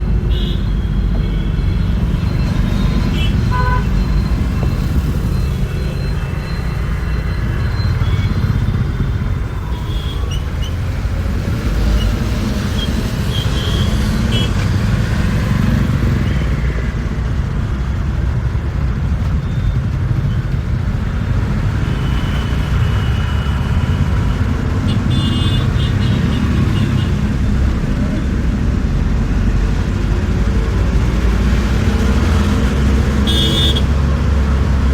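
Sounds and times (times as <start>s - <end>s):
bus engine and tyres rumbling: 0.0s - 34.9s
vehicle horns tooting: 2.8s - 4.2s, 24.8s - 27.2s, 33.1s - 34.0s.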